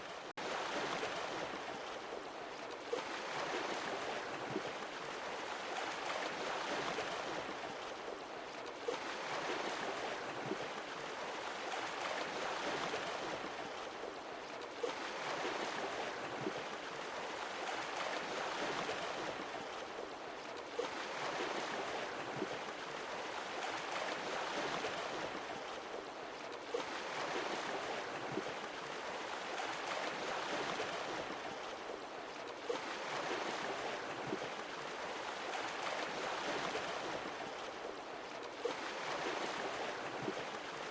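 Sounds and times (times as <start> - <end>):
sea waves breaking: 26.7 - 32.0, 32.6 - 40.9.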